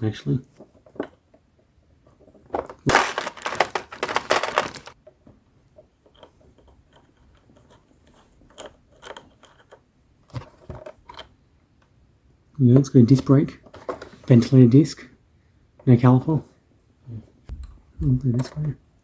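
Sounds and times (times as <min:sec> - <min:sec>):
toy truck parts clattering: 0:02.1 - 0:05.0.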